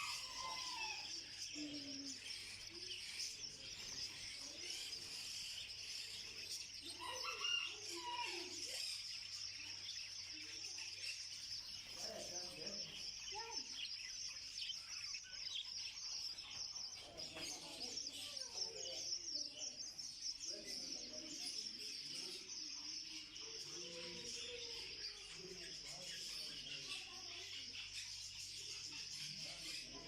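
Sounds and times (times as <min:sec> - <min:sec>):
caged birds chirping: 0:00.0 - 0:30.0
faint voices: 0:00.0 - 0:30.0.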